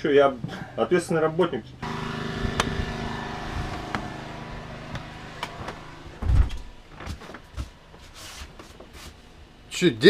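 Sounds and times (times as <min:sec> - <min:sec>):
heavy machine engine running: 0:01.8 - 0:07.6
heavy low thump: 0:04.9 - 0:06.8.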